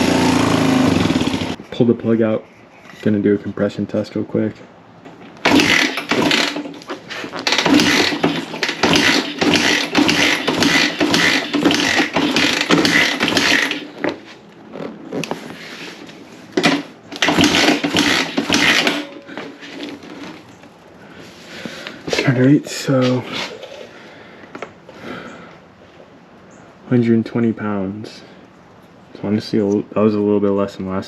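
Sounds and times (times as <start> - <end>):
dirt bike engine cranking: 0.0 - 1.6, 5.4 - 14.2, 16.6 - 20.4.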